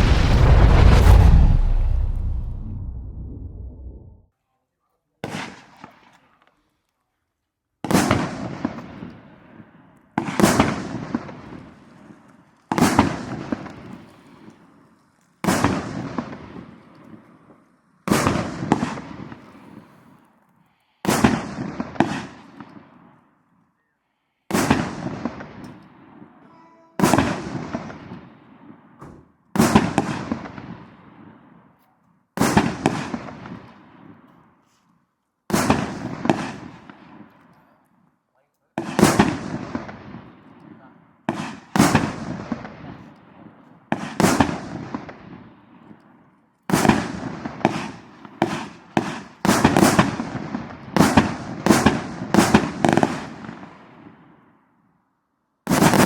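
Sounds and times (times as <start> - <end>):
fireworks bangs with long tail: 0.0 - 4.2, 10.2 - 11.8, 18.1 - 19.6, 21.1 - 23.0, 24.5 - 26.4, 27.0 - 31.4, 32.4 - 34.2, 35.5 - 37.2, 38.8 - 40.6, 41.3 - 43.0, 43.9 - 45.6, 46.7 - 54.4, 55.7 - 56.0.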